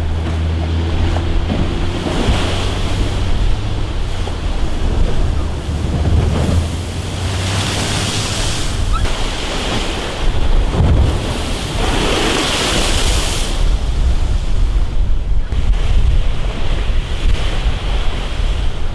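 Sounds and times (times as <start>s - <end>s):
sea waves crashing: 0.0s - 18.9s
wind buffeting microphone: 0.0s - 18.9s
rushing spray: 2.3s - 10.4s.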